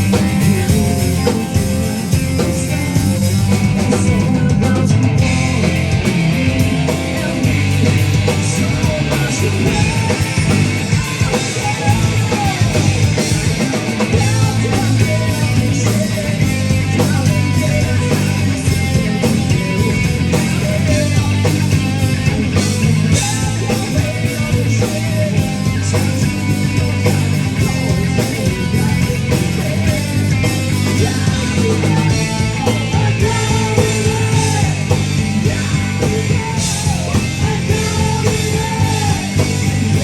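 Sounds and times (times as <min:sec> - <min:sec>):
heavy sustained bass line: 0:00.0 - 0:13.6
rock band playing live: 0:00.0 - 0:40.0.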